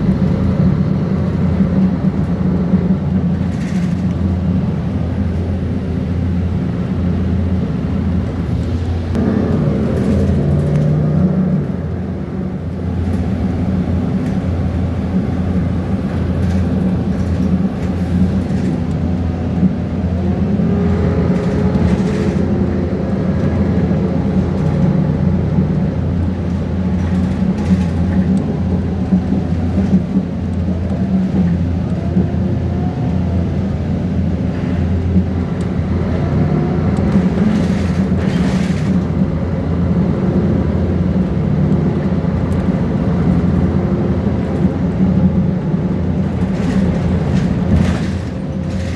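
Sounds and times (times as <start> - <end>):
bus diesel engine with whine: 0.0 - 48.9.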